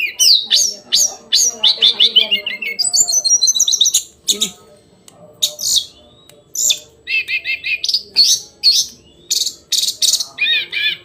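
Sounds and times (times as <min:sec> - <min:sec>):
bird singing high phrases: 0:00.0 - 0:04.6, 0:05.4 - 0:11.0.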